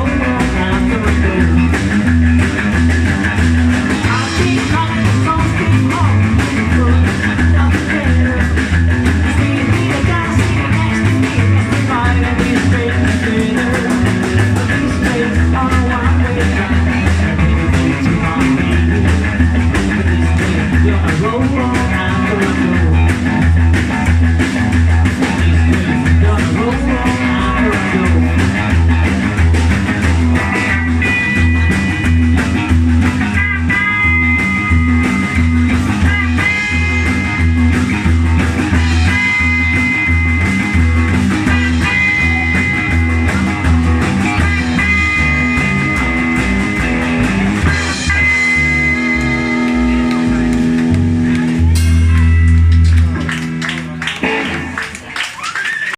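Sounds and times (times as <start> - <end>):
pulsing bass line: 0.0 - 55.1
guitar rock music: 0.0 - 55.4
lead guitar high notes: 48.0 - 55.2.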